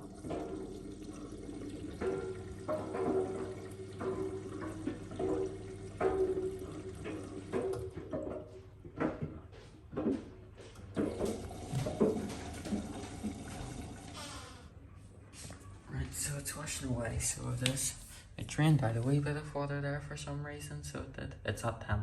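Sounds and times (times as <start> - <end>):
water sloshing in washing machine drum: 0.0 - 9.2, 10.8 - 14.4.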